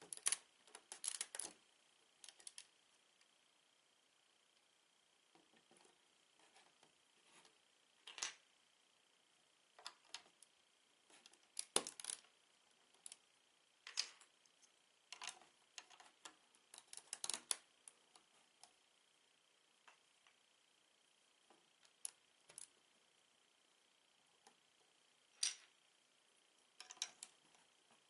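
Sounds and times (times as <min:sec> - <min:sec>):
plastic bricks clicking and clattering: 0:26.8 - 0:27.3.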